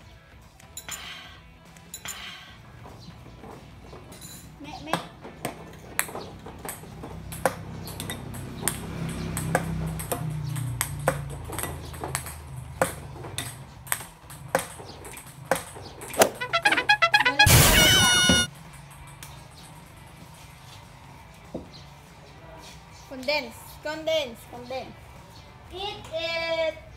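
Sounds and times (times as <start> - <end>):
ping pong balls bouncing: 4.8 - 19.6
balls hitting ceramic bowls: 4.9 - 18.5
loud burst with ringing tone: 17.4 - 18.2.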